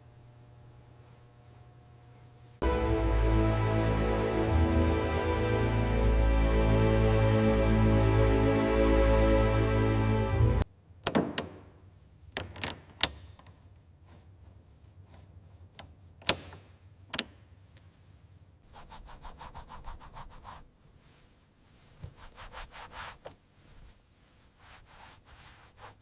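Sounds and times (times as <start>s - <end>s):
rubbing strokes over a surface: 17.9s - 26.0s.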